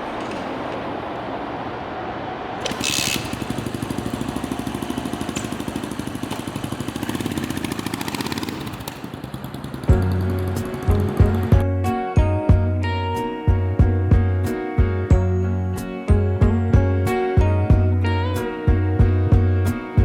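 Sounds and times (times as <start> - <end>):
motorcycle engine running: 2.7 - 11.7.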